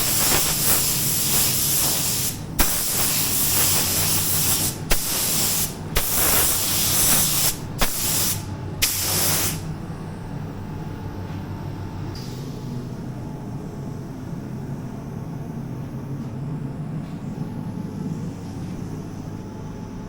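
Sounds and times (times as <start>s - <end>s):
paint spray gun hissing: 0.0s - 9.6s
steady low hum: 0.0s - 20.0s.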